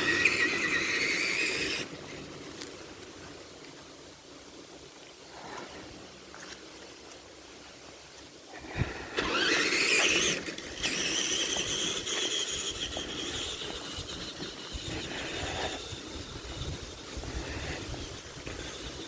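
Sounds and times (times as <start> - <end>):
toy truck electric motor whining: 0.0 - 1.9, 8.8 - 19.0
tyres rumbling over rough ground: 8.7 - 19.0.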